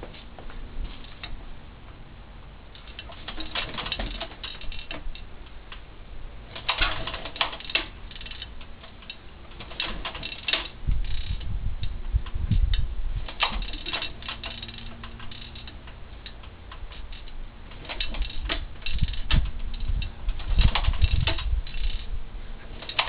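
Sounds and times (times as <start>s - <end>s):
rapid clicking and clattering: 13.3s - 22.1s, 22.7s - 23.0s.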